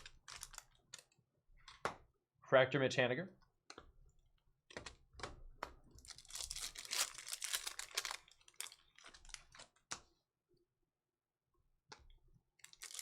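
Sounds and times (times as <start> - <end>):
foil wrapper crinkling and tearing: 0.0 - 1.0, 6.0 - 9.8, 12.6 - 13.0.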